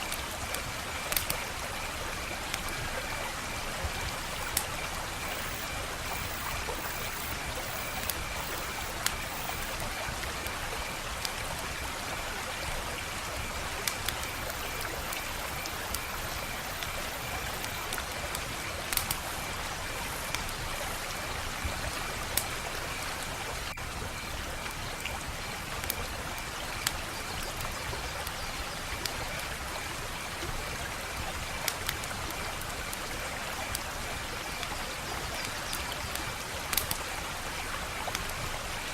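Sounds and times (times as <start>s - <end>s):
wood fire crackling: 4.1s - 9.8s.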